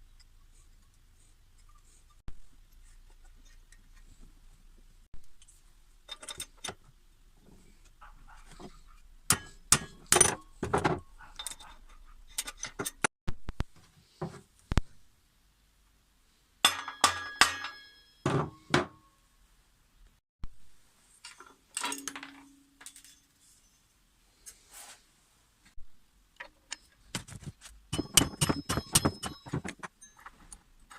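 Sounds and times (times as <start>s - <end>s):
metal tools clinking: 9.3s - 13.1s, 21.2s - 23.9s, 27.9s - 30.9s.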